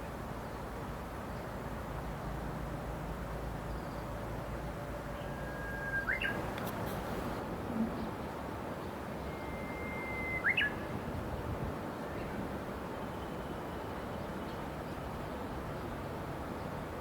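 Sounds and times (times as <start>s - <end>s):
bird song whistle with flourish: 5.2s - 6.4s, 9.2s - 10.9s.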